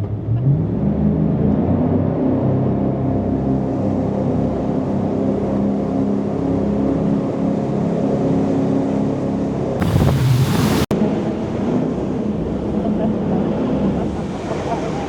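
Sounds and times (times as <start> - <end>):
boat engine drone: 2.1 - 15.0
rush of water and spray: 9.8 - 10.9.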